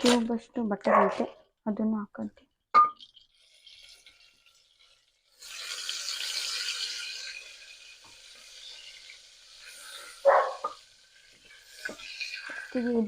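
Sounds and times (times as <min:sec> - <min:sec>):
butter sizzling in a pan: 0:03.0 - 0:13.0.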